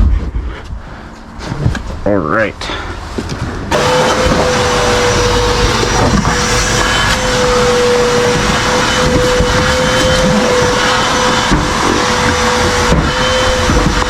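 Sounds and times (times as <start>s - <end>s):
vacuum cleaner running: 3.7s - 14.0s.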